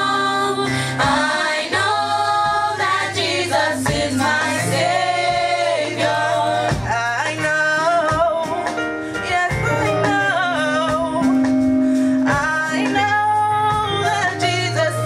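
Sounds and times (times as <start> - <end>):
people singing worship music: 0.0 - 8.4
bass line: 0.0 - 15.0.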